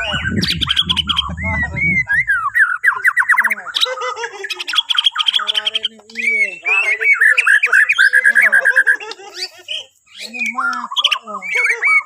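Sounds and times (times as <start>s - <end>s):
low rumble: 0.0s - 2.8s
bird singing varied song: 0.0s - 12.0s.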